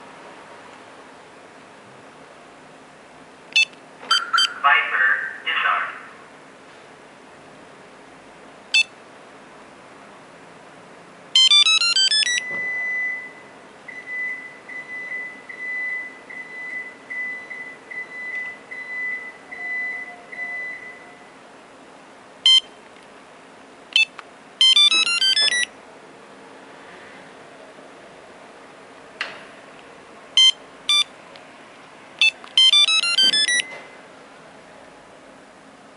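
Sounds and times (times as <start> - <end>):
electronic beeps: 3.6 - 4.7, 11.4 - 13.4, 22.5 - 22.7, 24.0 - 25.7, 30.4 - 31.1, 32.2 - 33.8.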